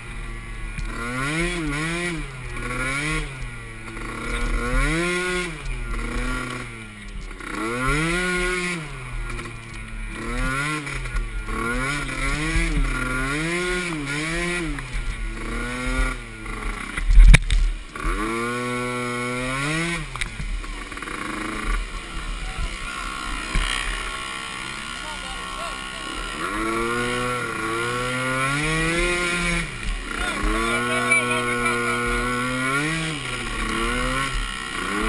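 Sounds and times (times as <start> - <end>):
small atv engine revving: 0.0 - 35.0.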